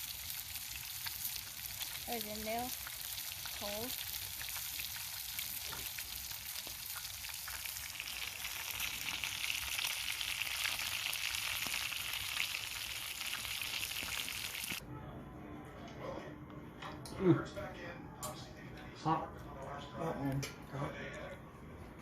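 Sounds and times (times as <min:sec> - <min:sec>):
meat sizzling in a pan: 0:00.0 - 0:14.8.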